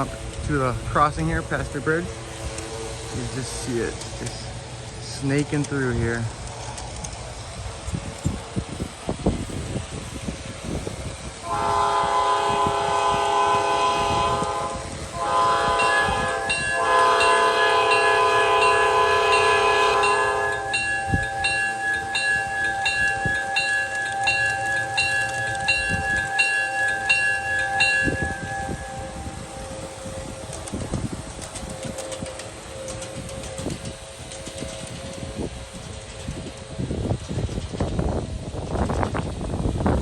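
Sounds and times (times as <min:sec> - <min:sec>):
locomotive bell ringing: 0:00.0 - 0:06.4, 0:11.4 - 0:37.2
locomotive air horn blasts: 0:11.4 - 0:37.3.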